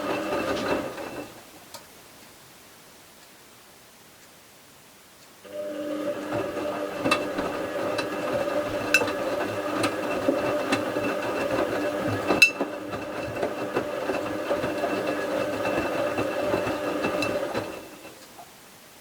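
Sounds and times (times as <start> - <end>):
washing machine motor hum: 0.0 - 1.4, 5.4 - 18.2.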